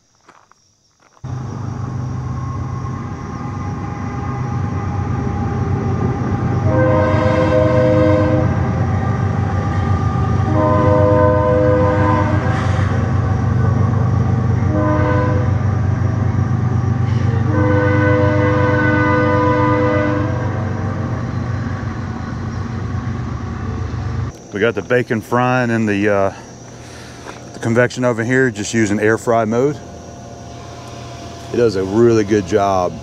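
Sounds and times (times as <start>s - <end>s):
train rumble: 1.2s - 33.0s
train horn blasts: 2.4s - 13.3s, 14.5s - 16.1s, 17.0s - 21.8s, 30.5s - 33.0s.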